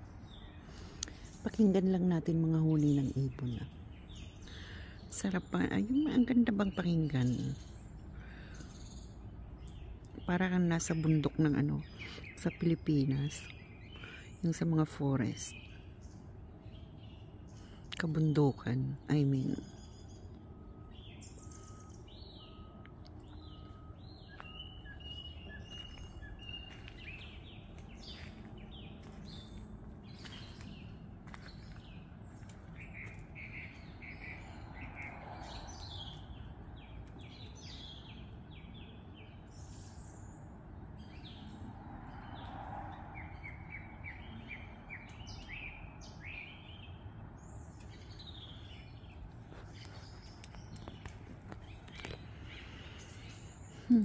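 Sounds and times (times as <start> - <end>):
birds chirping and trilling: 0.0 - 54.0.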